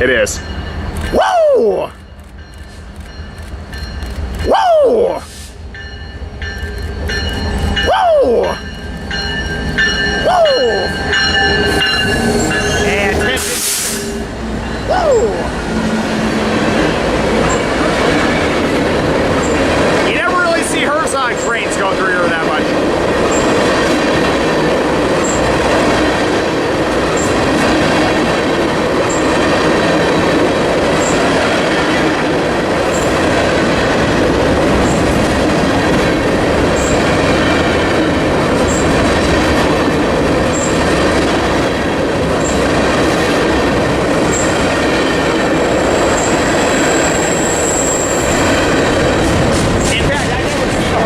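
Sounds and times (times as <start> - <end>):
high wheel squeal: 6.6 - 15.5, 45.6 - 48.5
high wheel squeaks: 8.6 - 15.2, 44.2 - 44.6, 45.2 - 48.6
wheel on rail rumble: 8.6 - 51.0.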